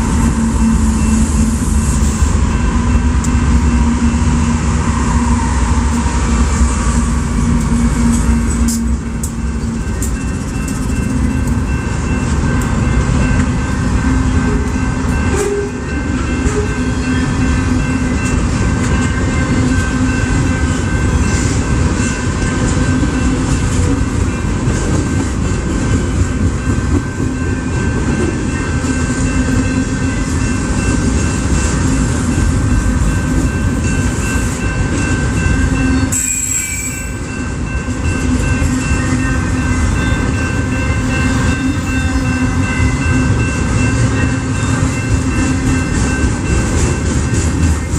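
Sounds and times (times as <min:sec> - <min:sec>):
freight train rumbling past: 0:00.0 - 0:47.9.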